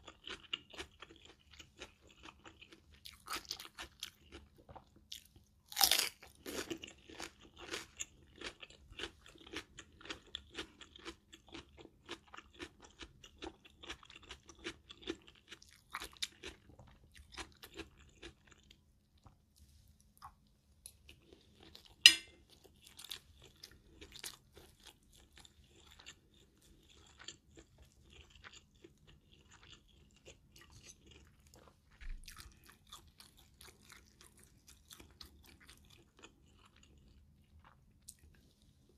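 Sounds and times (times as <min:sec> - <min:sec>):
crunching of raw cucumber: 0:00.0 - 0:18.8
chewing food: 0:00.0 - 0:38.9.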